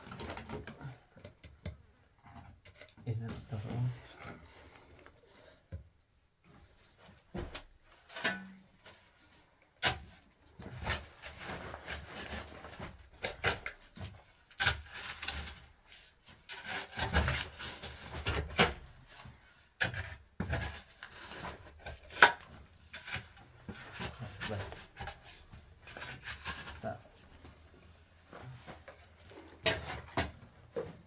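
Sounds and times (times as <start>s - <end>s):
scraping and rubbing: 20.0s - 30.8s.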